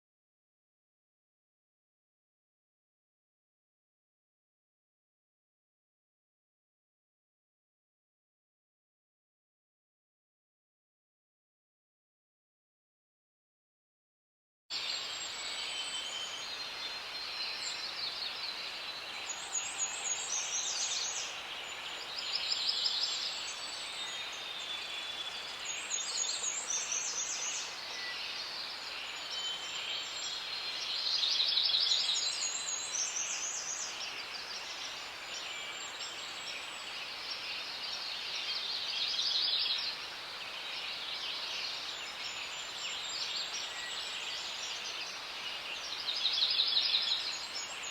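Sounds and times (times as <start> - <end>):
birds singing and calling: 14.8 - 47.9.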